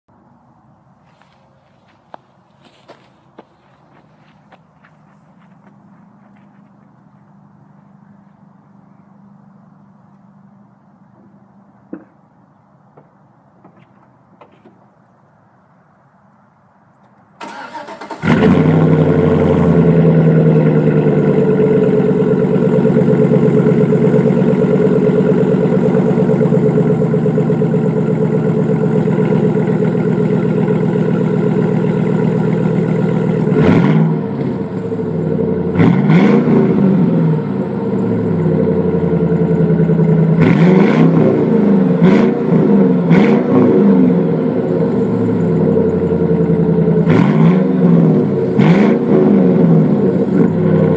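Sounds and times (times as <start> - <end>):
engine cranking and idling: 17.4 - 43.5
engine revving: 17.4 - 50.9.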